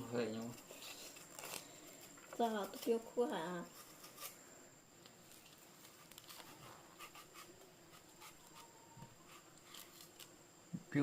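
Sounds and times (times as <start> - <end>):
small clicks and rustles: 5.0 - 6.7.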